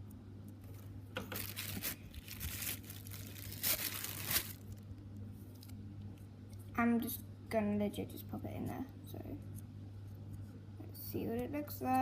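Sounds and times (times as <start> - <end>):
sticky slime handling: 0.7 - 4.8.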